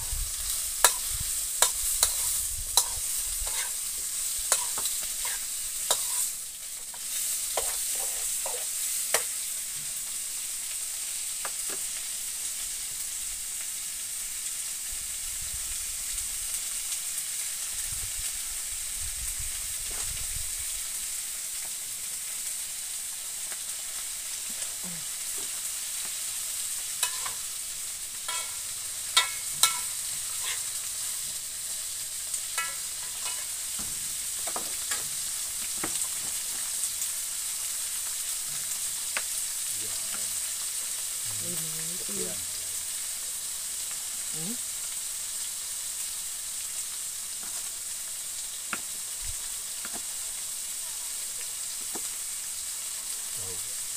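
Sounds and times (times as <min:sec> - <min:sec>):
food sizzling in wok: 0:00.0 - 0:53.9
metal spatula clinking on wok: 0:27.0 - 0:27.4, 0:28.3 - 0:28.6, 0:29.2 - 0:30.6, 0:32.6 - 0:33.5.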